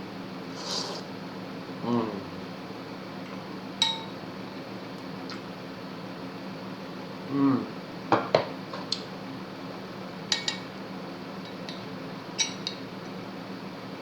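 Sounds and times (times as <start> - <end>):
teaspoon clinking against bowl: 12.4 - 12.8.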